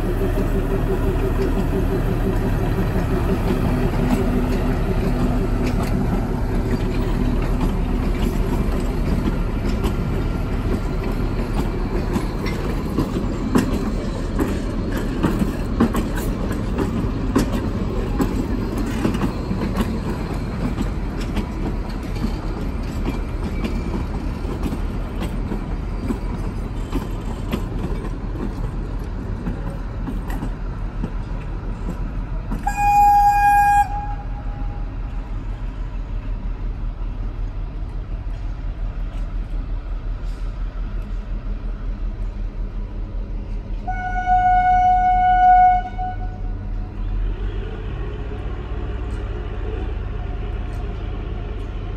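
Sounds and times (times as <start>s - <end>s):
train rumbling: 0.0s - 51.9s
train horn: 32.6s - 34.9s, 43.8s - 46.5s.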